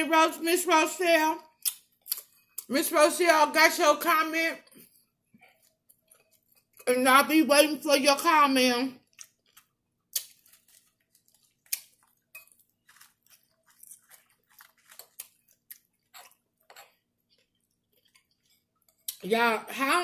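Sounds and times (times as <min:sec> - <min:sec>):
chewing crunchy chips: 0:09.0 - 0:19.2.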